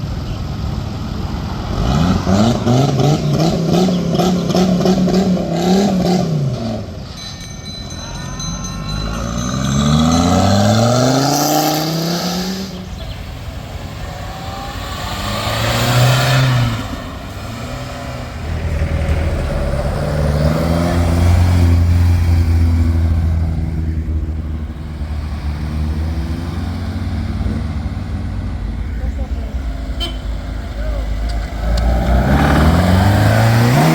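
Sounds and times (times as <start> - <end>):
vehicle engines driving past: 8.4 - 33.9.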